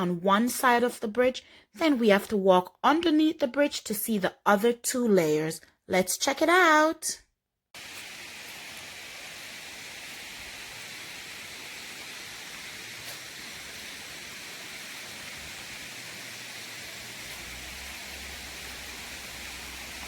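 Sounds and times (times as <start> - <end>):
waterfall rushing: 7.8 - 20.0.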